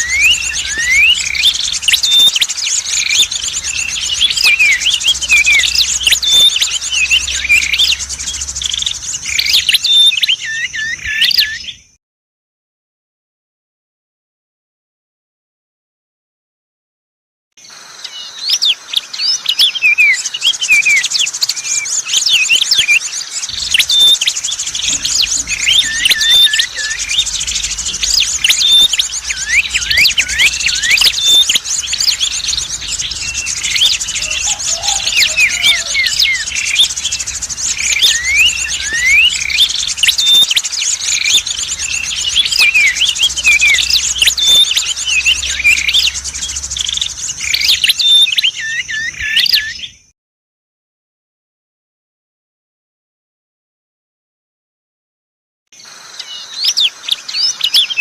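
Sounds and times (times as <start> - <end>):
rapid high trill: 0.0 - 9.8, 23.5 - 48.3
songbirds chirping and whistling: 0.0 - 12.0, 17.7 - 50.1, 55.8 - 58.0.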